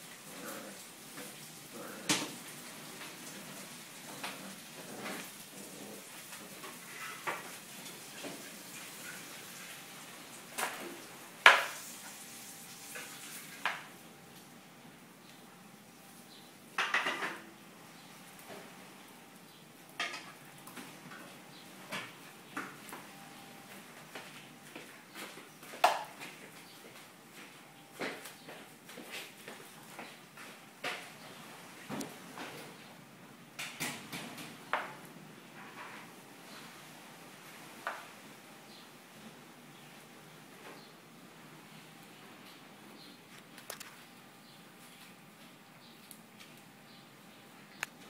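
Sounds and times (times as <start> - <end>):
puppy scuffling with mop: 0.1 - 14.5, 20.3 - 32.9.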